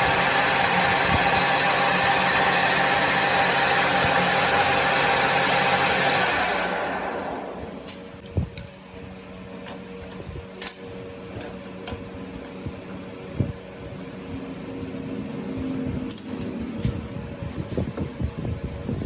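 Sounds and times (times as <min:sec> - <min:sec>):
workshop machine humming: 0:00.0 - 0:08.5.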